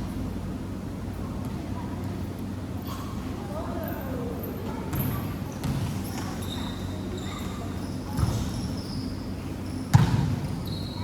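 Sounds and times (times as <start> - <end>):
shoe squeaks: 6.2 - 9.8, 10.5 - 11.0.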